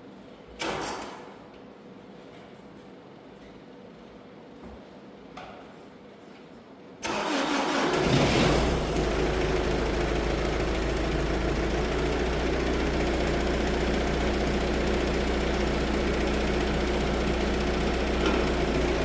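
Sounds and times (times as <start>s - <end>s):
tractor engine idling: 8.8s - 19.0s.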